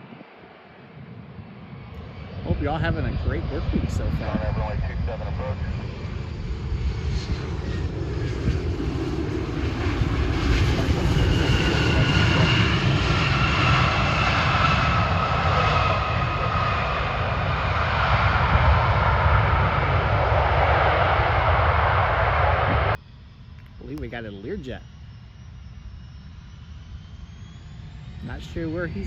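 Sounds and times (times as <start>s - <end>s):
wind rumble on microphone: 0.0s - 24.1s
jet passing by: 0.0s - 29.0s.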